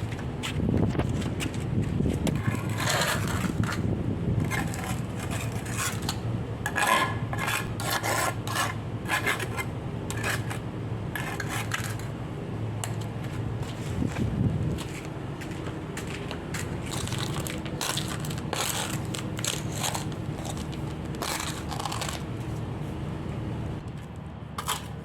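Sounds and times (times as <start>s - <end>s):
rough scraping strokes: 2.3s - 12.1s, 12.8s - 23.0s.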